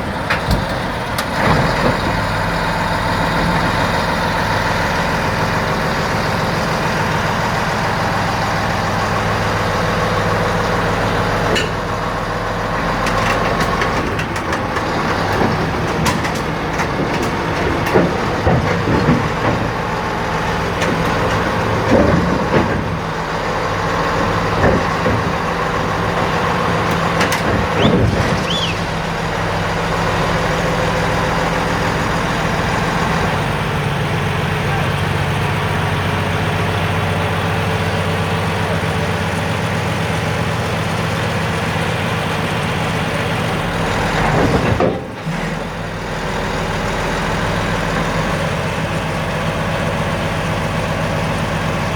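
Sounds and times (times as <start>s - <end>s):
bulldozer diesel engine running: 0.0s - 51.9s
metal track clanks and squeals: 11.4s - 12.0s, 24.0s - 29.6s.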